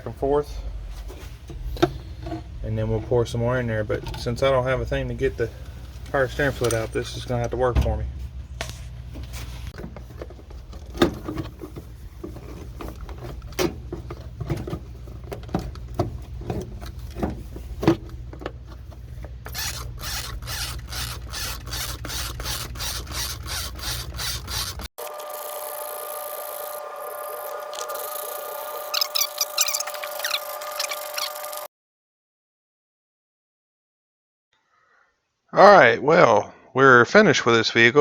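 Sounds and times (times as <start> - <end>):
low hum: 0.5 - 13.8.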